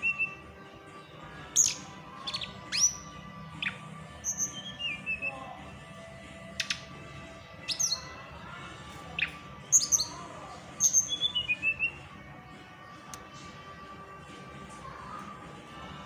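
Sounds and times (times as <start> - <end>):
bird whistles and trills: 0.0 - 0.4, 1.5 - 5.4, 6.5 - 6.9, 7.6 - 8.1, 9.2 - 12.1.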